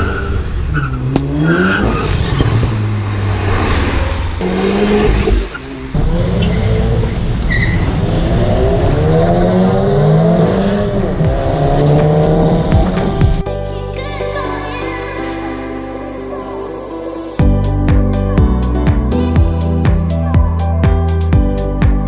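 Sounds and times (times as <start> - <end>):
car engines revving: 0.0 - 13.4.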